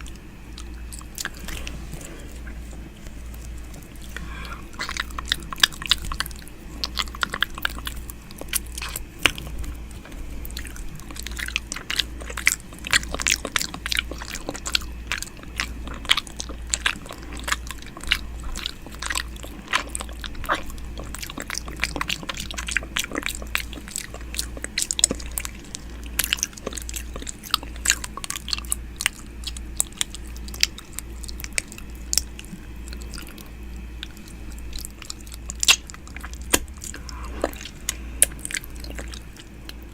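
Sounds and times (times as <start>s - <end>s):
low hum: 0.0s - 39.9s
wet mouth clicks and smacks: 34.0s - 39.8s.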